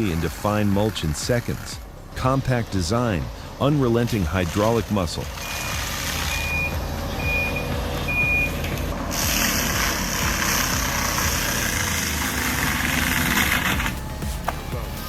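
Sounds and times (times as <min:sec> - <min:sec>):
engine hum: 0:00.0 - 0:15.0
loud rushing noise: 0:00.0 - 0:15.0
reversing alarm beeping: 0:05.4 - 0:15.0.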